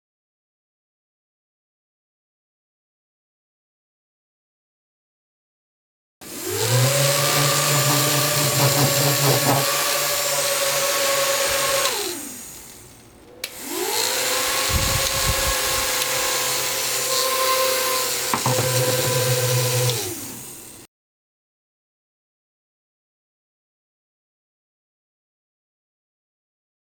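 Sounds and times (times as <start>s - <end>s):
small electric motors whining: 6.2s - 20.9s.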